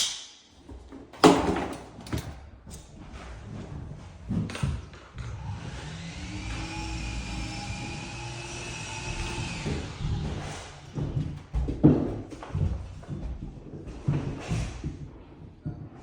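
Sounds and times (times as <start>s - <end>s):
small motor running: 5.2s - 10.9s.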